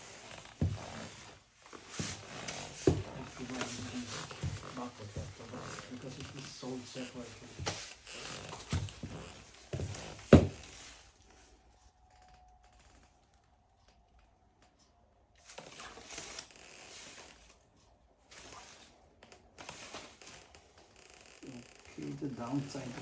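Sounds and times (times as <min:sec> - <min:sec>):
fabric rustling: 0:00.0 - 0:11.9.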